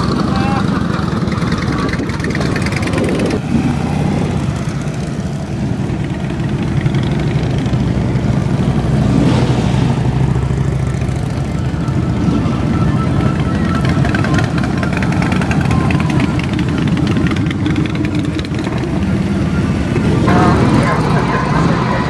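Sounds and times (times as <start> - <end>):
motorcycle engines rumbling: 0.0 - 22.0.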